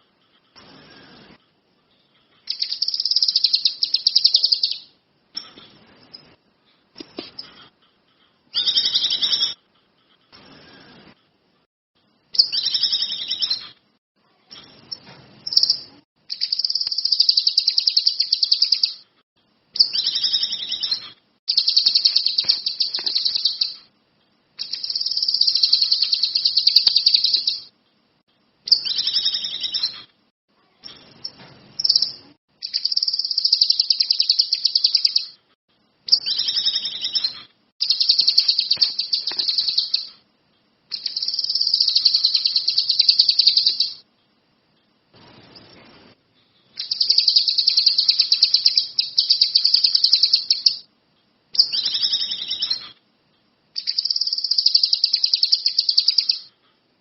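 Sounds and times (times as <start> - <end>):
songbird rattling trills: 2.5 - 4.8, 14.9 - 19.0, 19.8 - 23.8, 31.2 - 35.3, 36.1 - 40.1, 46.8 - 50.8.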